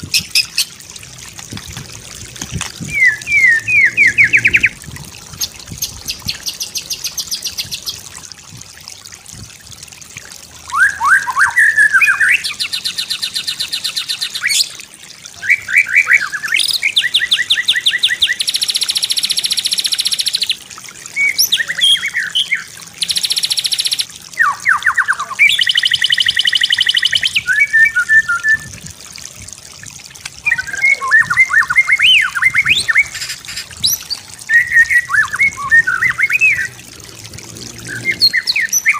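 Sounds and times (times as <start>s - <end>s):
songbird singing whistles and trills: 2.8s - 4.8s, 10.7s - 14.8s, 15.4s - 28.8s, 30.4s - 36.7s.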